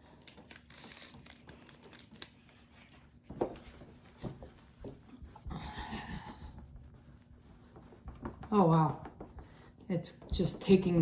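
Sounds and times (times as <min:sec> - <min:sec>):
rustling and crinkling: 0:00.1 - 0:05.5.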